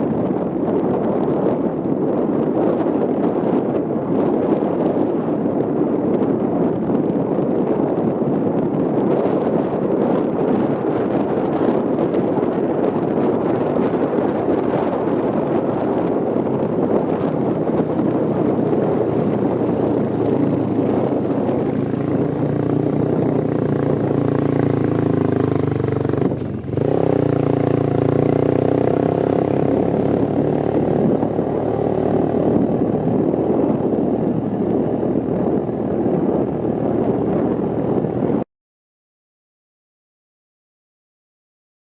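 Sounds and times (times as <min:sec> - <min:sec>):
motorbike engine running: 0:14.4 - 0:38.4.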